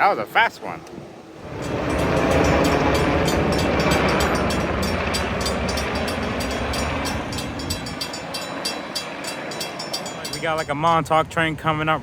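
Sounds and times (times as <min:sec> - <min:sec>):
train passing at speed: 0:01.4 - 0:10.7
wheels clicking over rail joints: 0:01.5 - 0:10.8.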